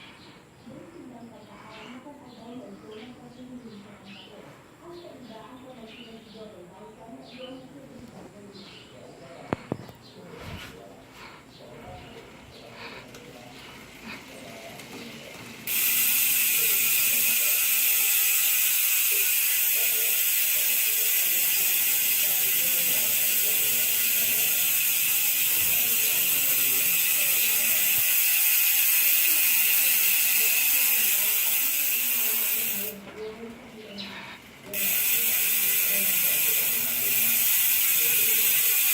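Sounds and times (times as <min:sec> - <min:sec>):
bicycle hub freewheel buzzing: 0:12.1 - 0:38.9.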